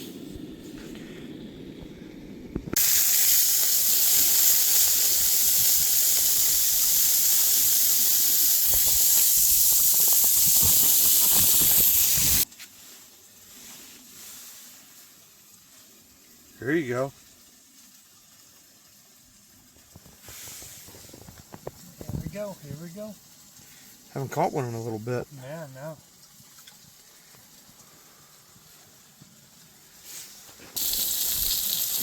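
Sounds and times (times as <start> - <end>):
burger patties sizzling on griddle: 2.8 - 16.0, 19.6 - 24.0, 29.9 - 32.0.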